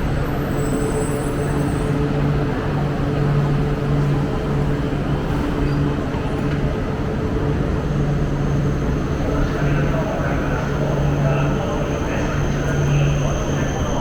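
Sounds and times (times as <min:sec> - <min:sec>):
train cabin rumble and hiss: 0:00.0 - 0:14.0.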